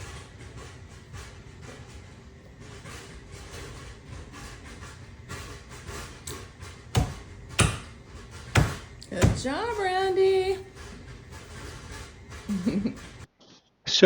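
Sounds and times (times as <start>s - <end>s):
sharp knocks: 6.3s - 9.8s.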